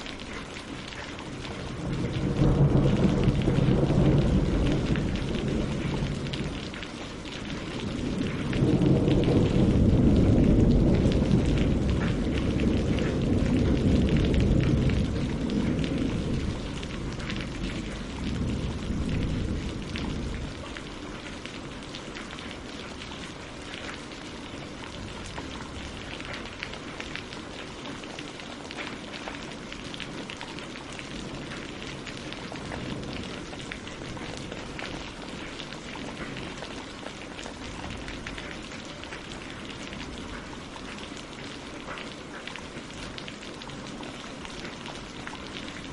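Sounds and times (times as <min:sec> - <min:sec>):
rain on water and leaves: 0:00.0 - 0:45.9
thunder rumble: 0:01.5 - 0:24.0.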